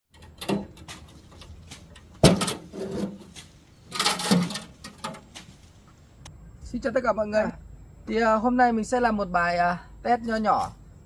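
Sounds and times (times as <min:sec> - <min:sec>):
clattering scrapes: 0:00.2 - 0:05.6.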